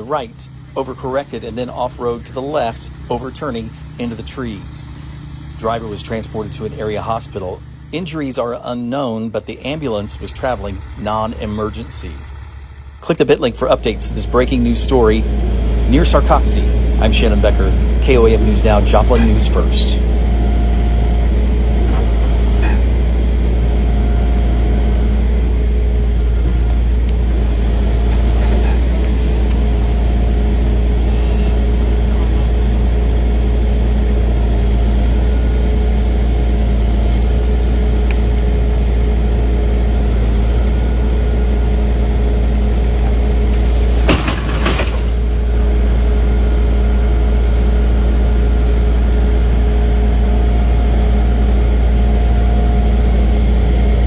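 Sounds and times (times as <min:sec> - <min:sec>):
truck engine idling: 0:00.0 - 0:54.0
brief clatter: 0:42.7 - 0:45.6.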